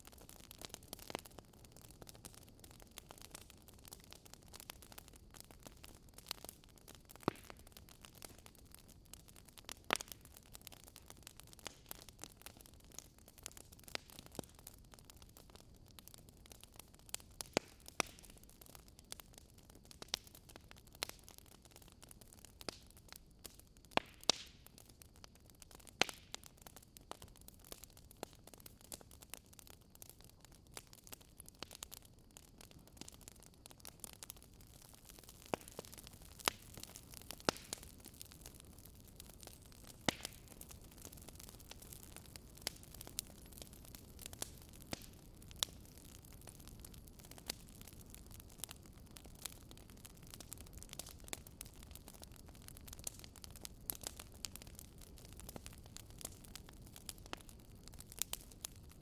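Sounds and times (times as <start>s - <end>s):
campfire wood crackling: 0.0s - 59.0s.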